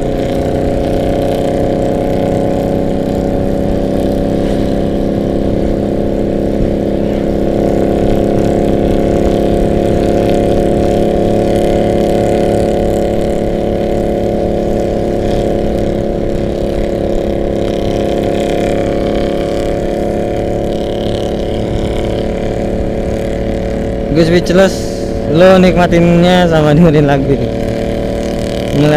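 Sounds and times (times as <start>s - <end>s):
motorcycle engine cruising: 0.0s - 28.9s
wind rumble on microphone: 2.9s - 17.6s.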